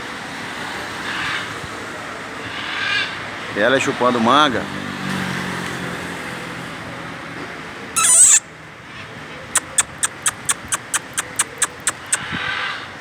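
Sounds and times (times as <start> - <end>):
macaw squawk: 8.0 - 8.4, 9.6 - 12.8
sharp clicks: 9.6 - 12.2.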